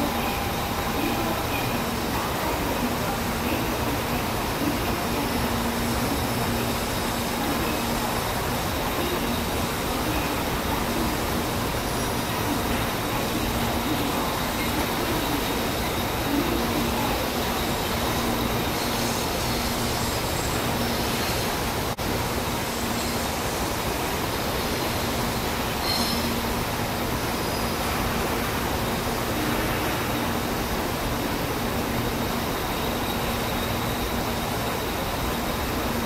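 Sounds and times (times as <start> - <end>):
train wheels rumbling on track: 0.0 - 36.0
train wheel squeals: 25.8 - 26.5.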